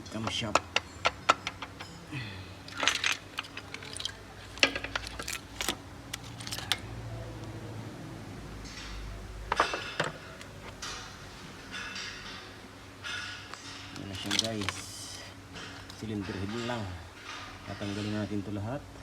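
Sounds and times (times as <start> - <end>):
metal tools clinking and rattling: 0.0 - 6.9, 8.6 - 18.7
scraping metal clatters: 2.7 - 6.9, 8.6 - 18.6.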